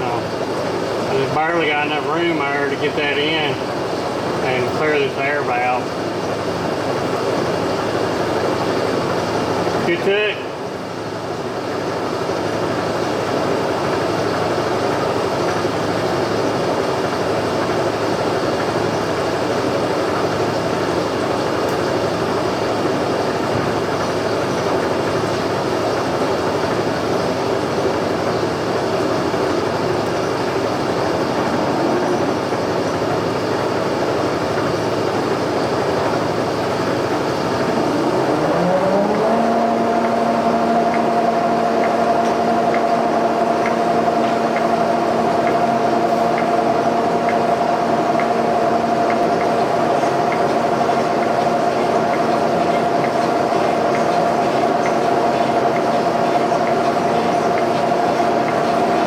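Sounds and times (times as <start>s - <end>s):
motor pitch rising: 37.0s - 59.0s.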